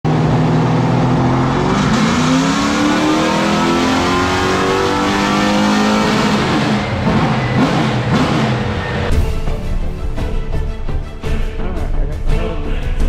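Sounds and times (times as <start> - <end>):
engine revving on dyno: 0.1 - 9.1.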